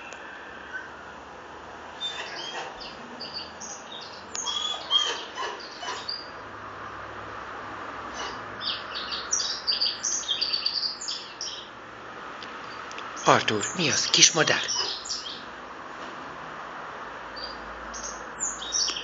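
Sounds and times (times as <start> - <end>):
small bird chirping: 8.2 - 11.7, 12.7 - 15.4, 17.4 - 19.0.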